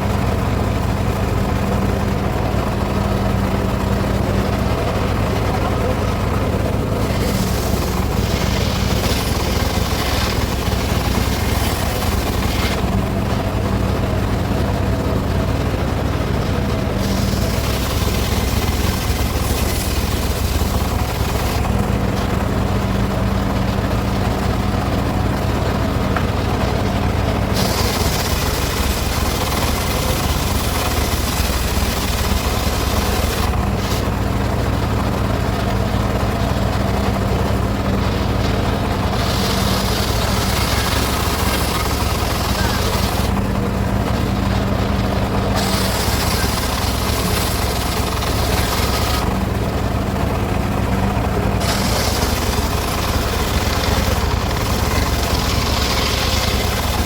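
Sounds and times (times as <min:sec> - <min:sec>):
saw machinery humming: 0:00.0 - 0:57.0
saw blade hissing through wood: 0:45.6 - 0:49.2, 0:51.6 - 0:57.0.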